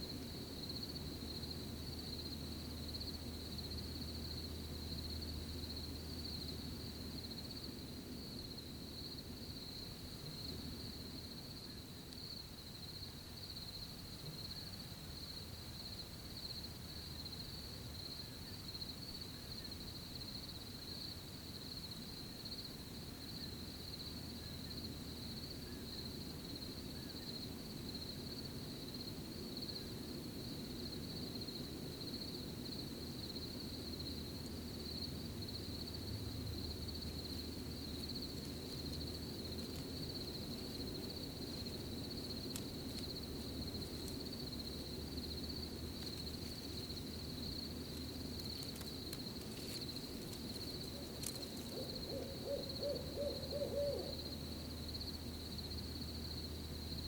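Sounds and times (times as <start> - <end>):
crickets trilling: 0.0 - 57.0
soft low rustle: 36.7 - 51.9.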